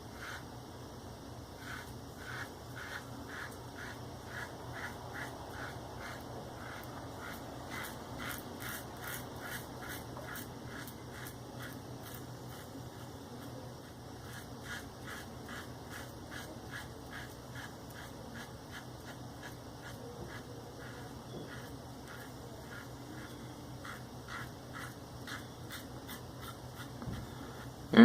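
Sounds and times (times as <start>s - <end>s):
razor scraping stubble: 1.6s - 27.7s.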